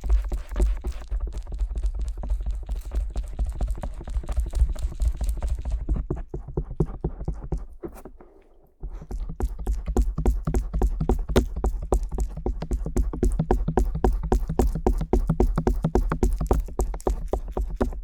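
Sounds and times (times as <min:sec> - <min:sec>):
ear pick scraping and tapping: 0:05.2 - 0:18.0.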